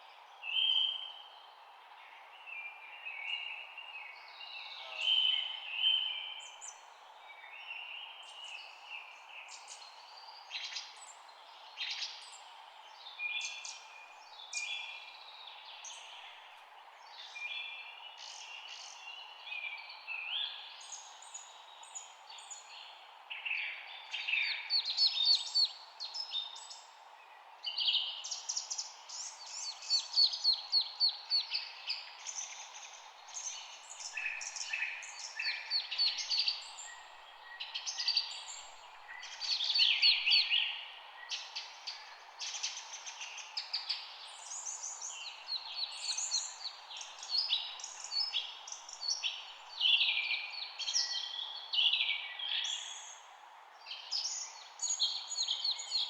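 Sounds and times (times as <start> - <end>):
songbirds chirping and singing: 7.7 - 53.2
background hiss: 24.1 - 56.0.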